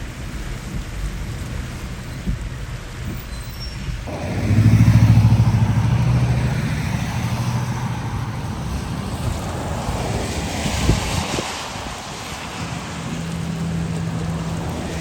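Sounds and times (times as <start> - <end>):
hiss of rain and water: 0.0 - 15.0
vehicle engine running close: 4.0 - 15.0.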